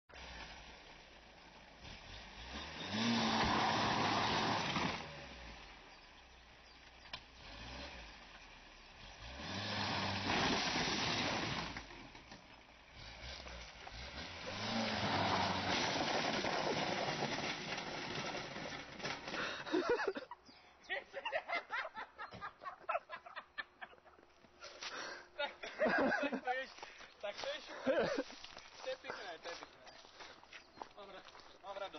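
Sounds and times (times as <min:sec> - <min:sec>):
car engine revving hard: 0:01.8 - 0:05.8, 0:07.3 - 0:12.1, 0:12.9 - 0:18.8
metal panel scraping over dirt: 0:13.3 - 0:19.5.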